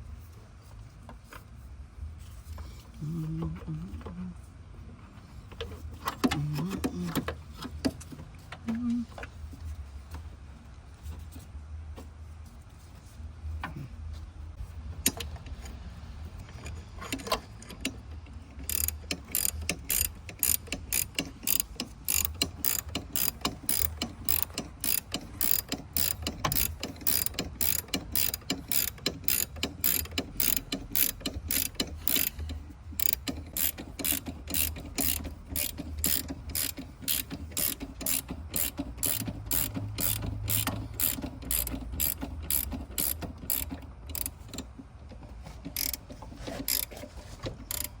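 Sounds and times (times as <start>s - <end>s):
tool handling clicks and knocks: 16.4s - 48.0s
ratchet wrench clicking: 17.1s - 44.7s, 45.7s - 46.0s, 46.6s - 47.0s, 47.7s - 48.0s.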